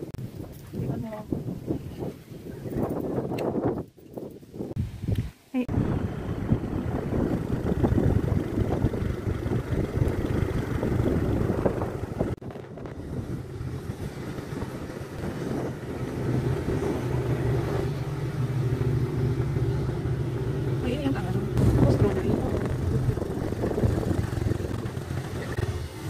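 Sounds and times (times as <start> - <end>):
wind buffeting microphone: 0.0 - 26.0
vehicle engine hum: 5.6 - 26.0.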